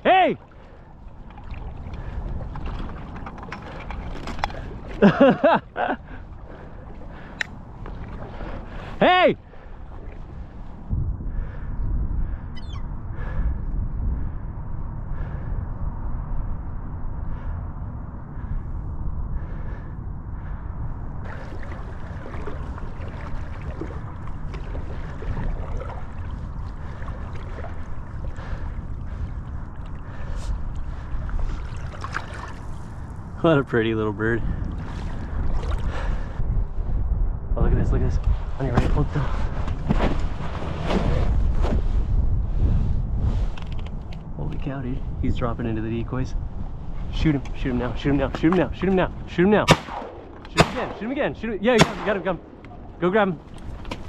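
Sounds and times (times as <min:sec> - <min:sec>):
man yelling: 0:00.0 - 0:00.4, 0:09.0 - 0:09.4
water sloshing: 0:00.0 - 0:10.9, 0:21.2 - 0:33.3, 0:34.6 - 0:36.2
wind rumble on microphone: 0:00.0 - 0:54.0.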